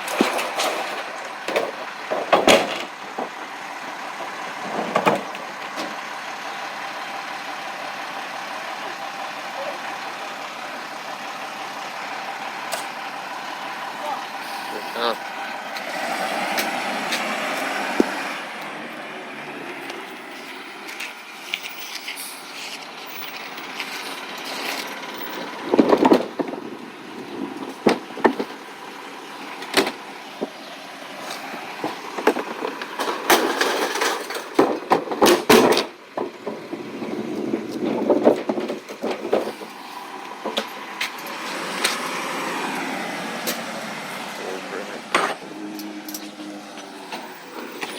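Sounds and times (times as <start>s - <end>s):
knocks and clatters: 0.0s - 3.4s, 23.3s - 26.6s, 31.3s - 36.8s, 37.7s - 39.6s.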